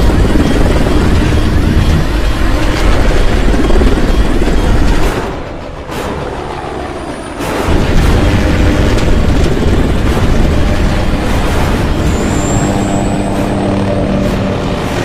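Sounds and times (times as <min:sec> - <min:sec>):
helicopter engine and rotor: 0:00.0 - 0:15.0
thin high whine: 0:11.9 - 0:14.4.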